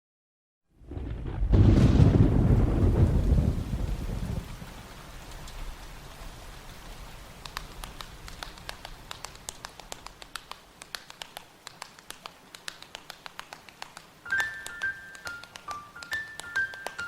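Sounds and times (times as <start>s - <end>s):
water drops dripping: 7.4s - 17.0s.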